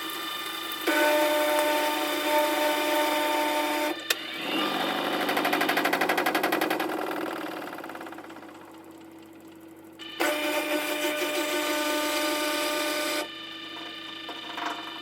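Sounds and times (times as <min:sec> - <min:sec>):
washing machine motor whine: 0:00.0 - 0:15.0
washing machine pulsing churn: 0:00.0 - 0:15.0.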